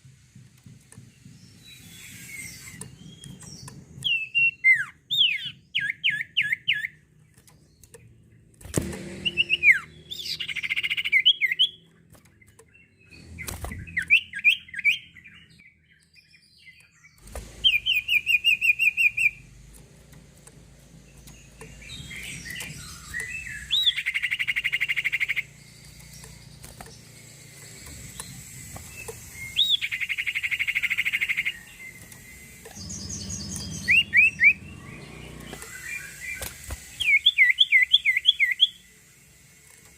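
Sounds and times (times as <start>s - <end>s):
songbird whistling and trilling: 1.2s - 7.0s, 9.2s - 11.9s, 12.8s - 19.4s, 21.3s - 27.3s, 28.1s - 39.0s.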